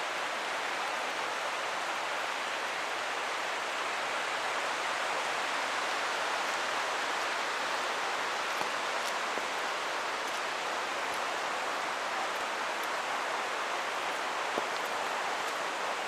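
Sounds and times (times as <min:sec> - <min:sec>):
creek water rushing: 0:00.0 - 0:16.0
raindrop ticks: 0:08.4 - 0:16.0.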